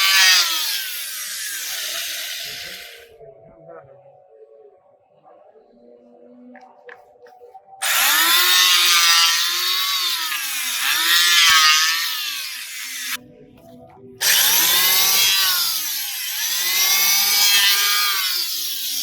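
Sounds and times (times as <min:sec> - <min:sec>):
electric hand planer cutting wood: 0:00.0 - 0:03.1, 0:07.8 - 0:13.2, 0:14.2 - 0:19.0.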